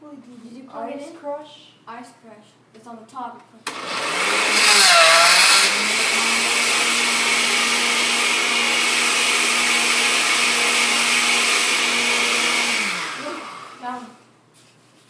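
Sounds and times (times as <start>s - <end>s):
blender crushing ice: 3.7s - 14.0s.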